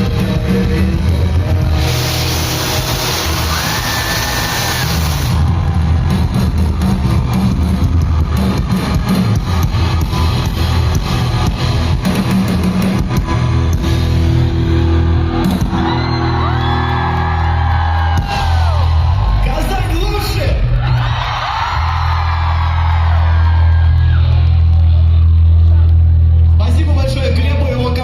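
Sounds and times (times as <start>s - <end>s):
live rock band playing: 0.0s - 20.7s.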